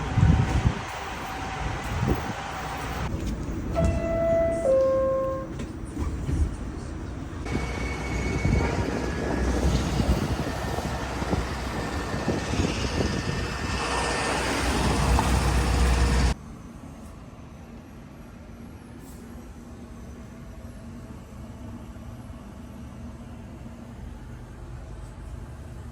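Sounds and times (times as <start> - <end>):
subway train rumbling: 0.0 - 25.9
two-note descending chime: 3.8 - 5.6.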